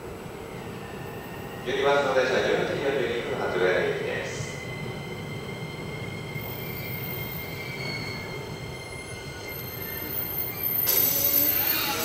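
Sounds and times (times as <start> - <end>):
train wheels rumbling on rails: 0.0 - 12.0
high electric whine: 9.2 - 12.0.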